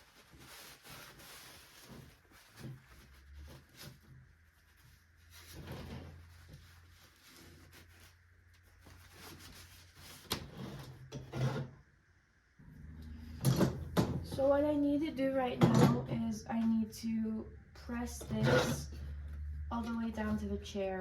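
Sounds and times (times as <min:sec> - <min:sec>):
rubbing and shuffling: 0:00.0 - 0:10.8.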